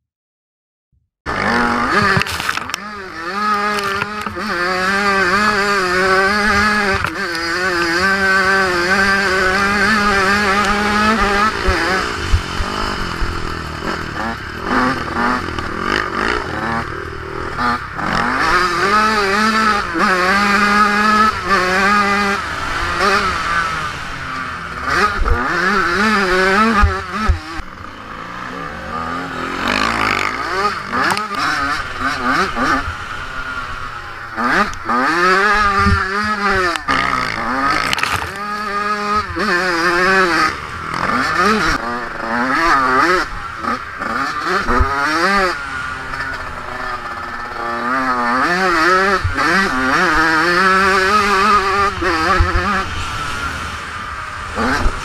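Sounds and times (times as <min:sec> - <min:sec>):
motocross bike engine revving: 0:01.3 - 0:55.0.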